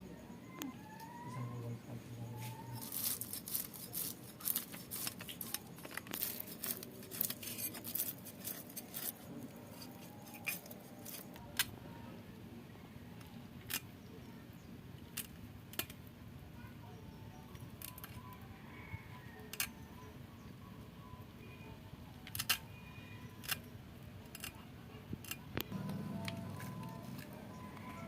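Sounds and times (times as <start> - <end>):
sharp clicks and scrapes: 2.4 - 11.8, 13.6 - 13.9, 17.5 - 18.3, 19.5 - 19.7, 22.2 - 22.6, 23.4 - 28.0.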